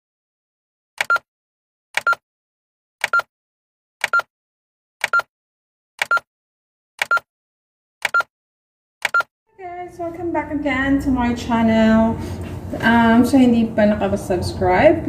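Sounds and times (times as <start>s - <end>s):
countdown timer ticks and beep: 1.0s - 1.2s, 2.0s - 2.2s, 3.0s - 3.3s, 4.0s - 4.3s, 5.0s - 5.3s, 6.0s - 6.3s, 7.0s - 7.3s, 8.0s - 8.3s, 9.0s - 9.3s.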